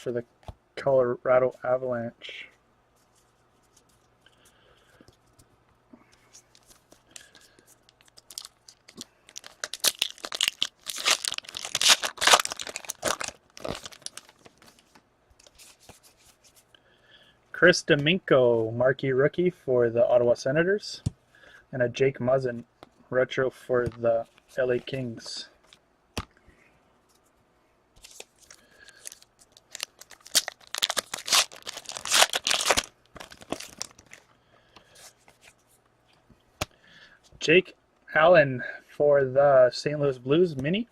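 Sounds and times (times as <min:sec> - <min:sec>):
plastic wrapper tearing and crinkling: 0:06.5 - 0:15.8, 0:28.0 - 0:34.3.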